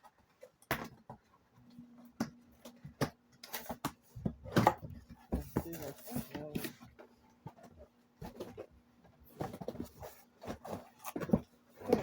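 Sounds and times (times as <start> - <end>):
packaging rustling and knocking: 2.3 - 6.8, 7.4 - 12.0.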